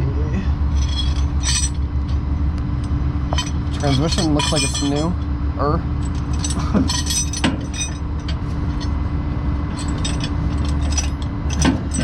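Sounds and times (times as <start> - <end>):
truck engine idling: 0.0 - 12.0
metal chain clinking: 0.7 - 2.2, 2.8 - 5.2, 6.0 - 9.0, 9.7 - 12.0.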